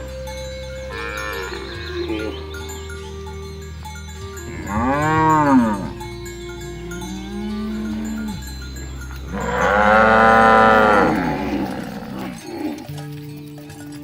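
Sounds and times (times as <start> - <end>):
cows mooing: 0.9 - 2.8, 4.4 - 13.0.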